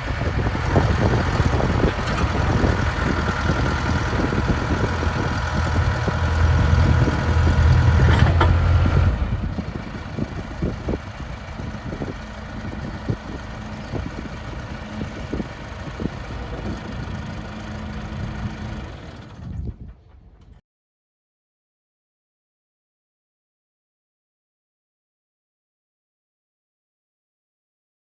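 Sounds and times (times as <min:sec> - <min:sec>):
diesel engine running: 0:00.0 - 0:20.6
knocks and clicks: 0:07.4 - 0:09.1.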